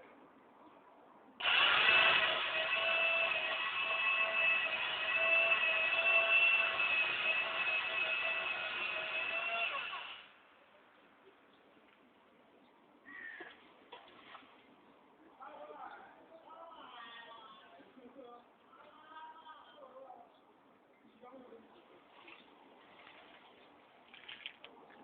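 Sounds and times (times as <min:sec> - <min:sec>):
power tool motor running: 0:01.4 - 0:10.3.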